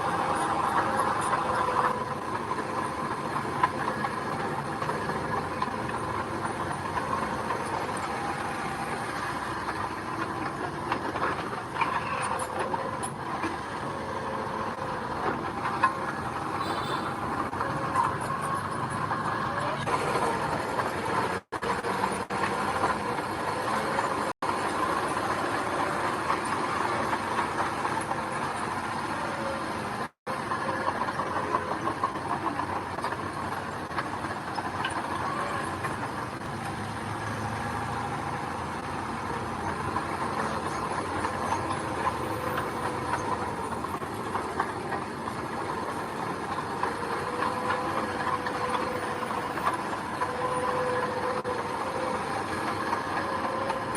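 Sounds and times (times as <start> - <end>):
earthmoving machinery engine running: 0.0 - 53.9.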